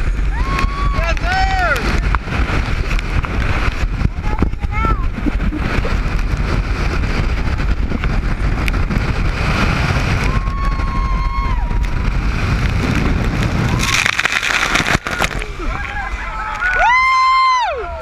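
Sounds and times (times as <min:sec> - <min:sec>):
speedboat engine rumble: 0:00.0 - 0:18.0
wind buffeting microphone: 0:00.0 - 0:18.0.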